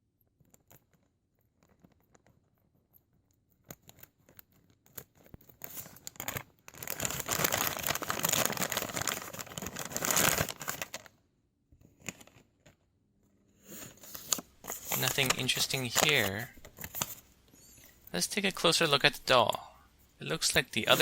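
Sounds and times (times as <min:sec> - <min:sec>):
plastic tearing and crinkling: 0:03.8 - 0:11.1, 0:13.8 - 0:17.3
plastic packaging rustling: 0:03.9 - 0:11.2, 0:13.7 - 0:21.0.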